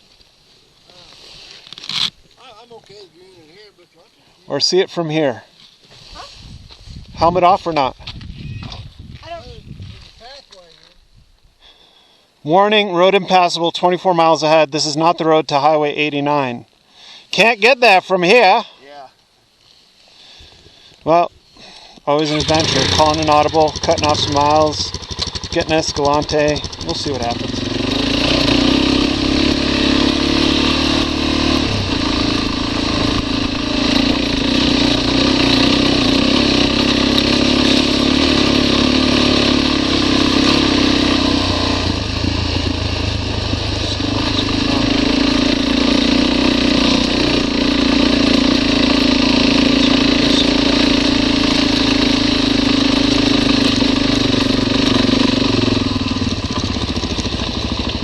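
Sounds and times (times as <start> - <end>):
wind noise: 6.0 - 10.4, 11.0 - 11.6
motorcycle engine running: 22.2 - 58.0.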